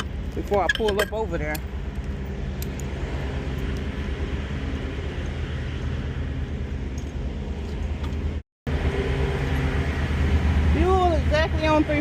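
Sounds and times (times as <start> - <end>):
diesel truck engine humming: 1.5 - 12.0.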